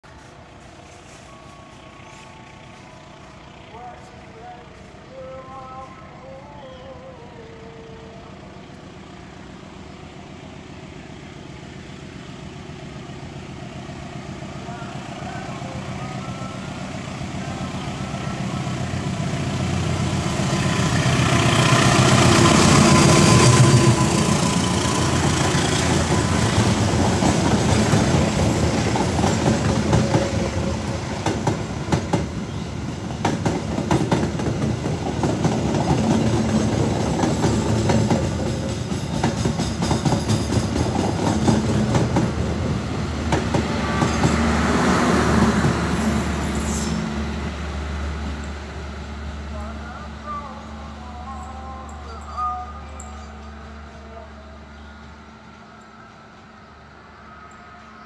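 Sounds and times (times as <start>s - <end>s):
diesel locomotive engine: 0.0s - 58.0s
train wheels clickety-clack: 21.0s - 47.0s.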